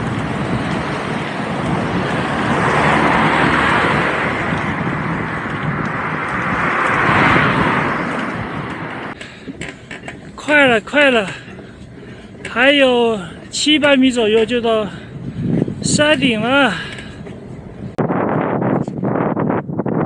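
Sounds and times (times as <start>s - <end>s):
vehicles passing on road: 0.0s - 20.0s.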